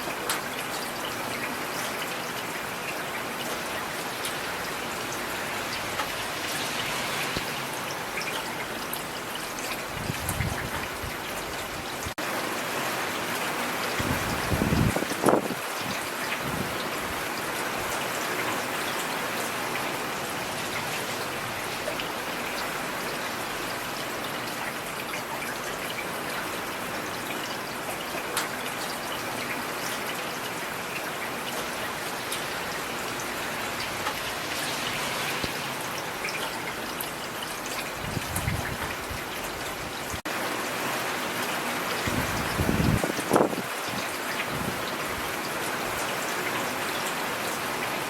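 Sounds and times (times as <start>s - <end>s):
rain hissing: 4.4s - 10.6s, 32.1s - 37.0s, 42.0s - 45.3s.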